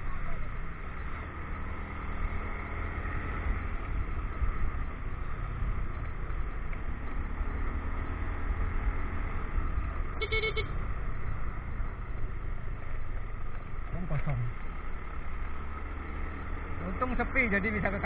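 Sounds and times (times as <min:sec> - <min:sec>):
motorcycle engine and road noise: 0:00.0 - 0:18.0
short horn beep: 0:10.2 - 0:10.8.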